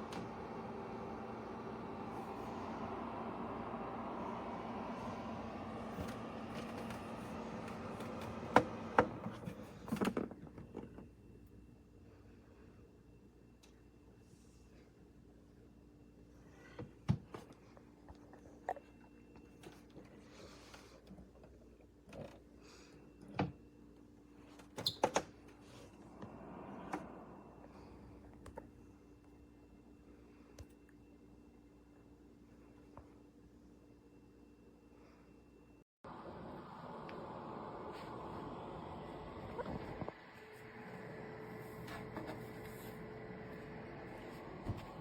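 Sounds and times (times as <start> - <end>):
heater fan motor whirring: 0.0 - 10.0, 25.5 - 28.8, 36.0 - 45.0.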